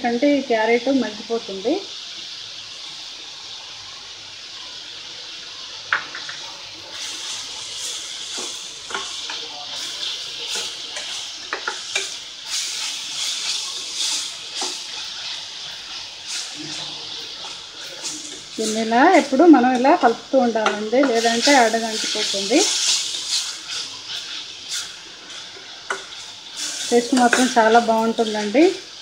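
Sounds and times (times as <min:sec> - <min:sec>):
vegetables sizzling in oil: 0:00.0 - 0:29.0
spatula scraping a pan: 0:06.9 - 0:28.8.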